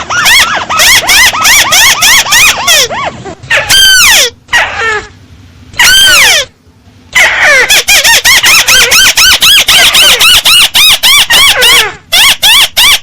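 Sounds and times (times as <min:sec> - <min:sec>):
shrill bird calls: 0:07.2 - 0:13.0.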